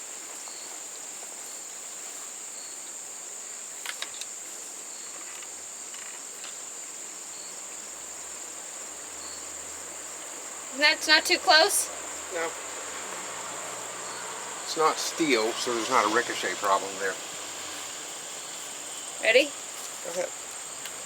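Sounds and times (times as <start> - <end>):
insects chorus: 0.0 - 21.0.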